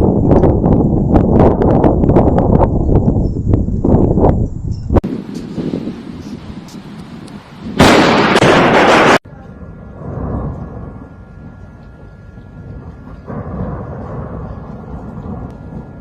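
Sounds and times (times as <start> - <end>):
thunder rumbling: 0.0 - 16.0
close thunderclap: 7.7 - 16.0.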